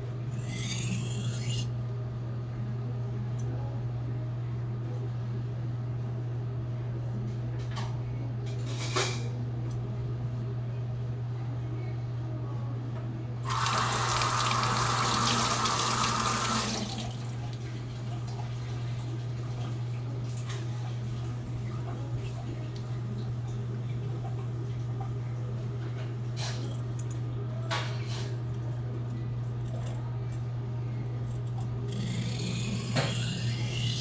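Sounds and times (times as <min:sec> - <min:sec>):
water running from a tap: 0:13.5 - 0:19.8.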